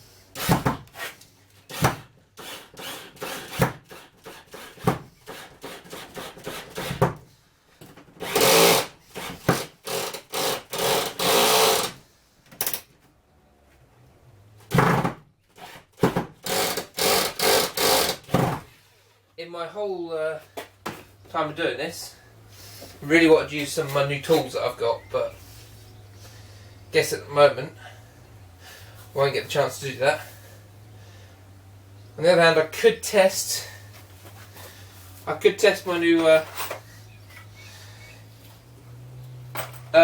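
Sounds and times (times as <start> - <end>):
tool rasping on timber: 2.4 - 7.0, 16.4 - 18.3.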